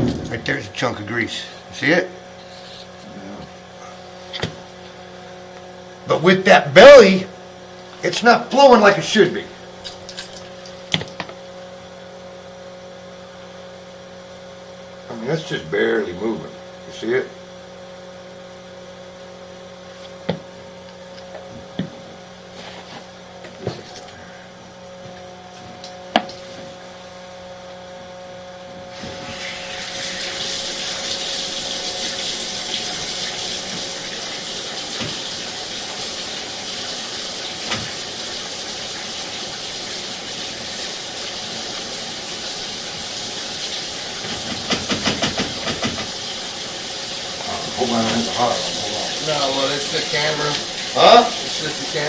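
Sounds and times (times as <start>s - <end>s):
electrical hum: 0.0s - 52.0s
water rushing: 45.4s - 52.0s.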